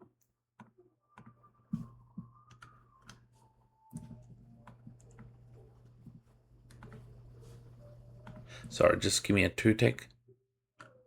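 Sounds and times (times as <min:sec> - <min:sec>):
keyboard and mouse clicks: 0:00.0 - 0:03.2, 0:03.9 - 0:05.4, 0:06.7 - 0:07.1, 0:10.8 - 0:11.0
low steady hum: 0:01.8 - 0:10.4.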